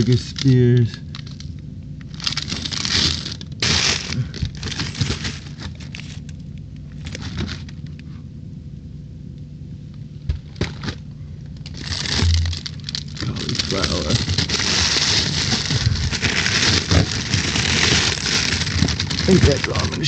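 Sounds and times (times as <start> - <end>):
plastic bags crinkling: 0.0 - 8.1, 10.4 - 20.0
frozen packages knocking: 2.1 - 6.2, 10.2 - 20.0.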